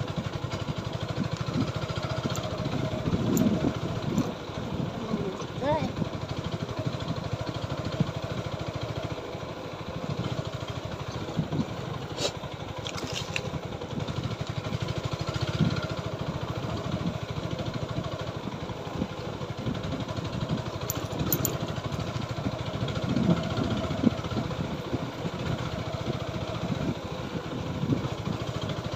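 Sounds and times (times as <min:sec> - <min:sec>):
motorcycle engine running: 0:00.0 - 0:28.9
sharp clicks and rattles: 0:01.2 - 0:04.4, 0:12.8 - 0:13.6, 0:20.6 - 0:22.2.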